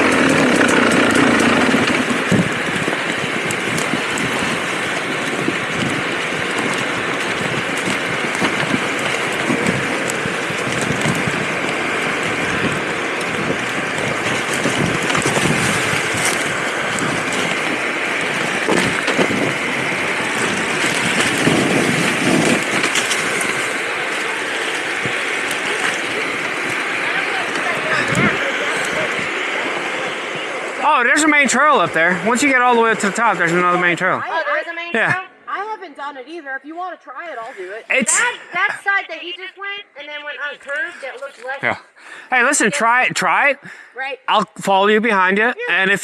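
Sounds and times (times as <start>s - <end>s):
wind on microphone: 0.0s - 31.2s.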